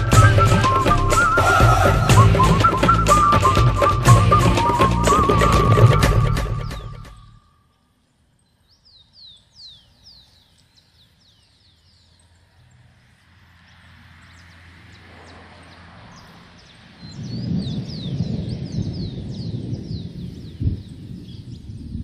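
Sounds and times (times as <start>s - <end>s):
bird whistling calls: 0.0s - 7.6s.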